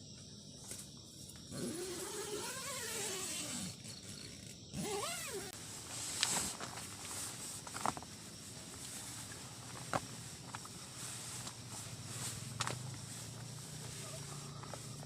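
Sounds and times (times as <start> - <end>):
animal calling: 13.6 - 15.0.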